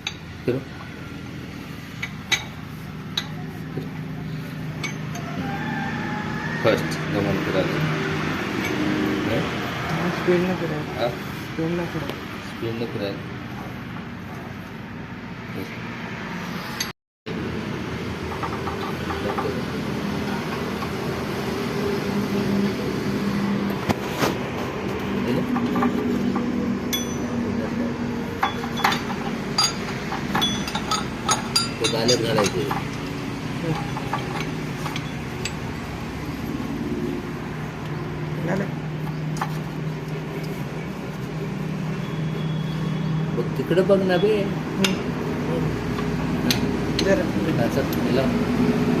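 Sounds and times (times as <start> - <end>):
tractor diesel engine running: 17.3 - 42.7
sharp metallic click and clink: 25.4 - 27.3, 28.4 - 35.7.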